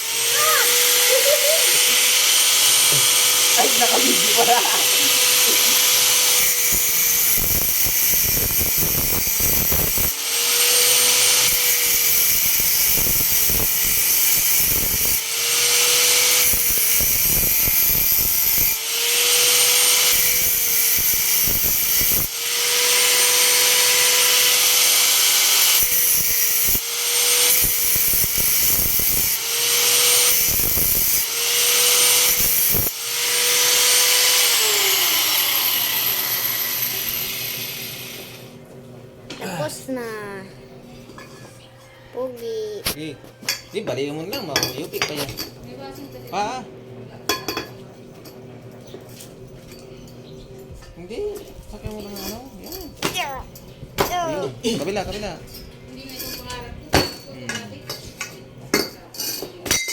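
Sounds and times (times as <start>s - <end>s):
loud crackling hiss of metal cutting: 0.0s - 38.6s
power tool motor whining: 0.0s - 38.6s.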